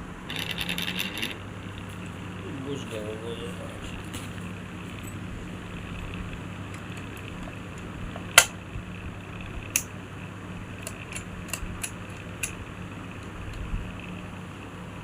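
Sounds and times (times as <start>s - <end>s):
steady low hum: 0.0s - 15.0s
clicks and taps of fan parts: 10.8s - 13.8s.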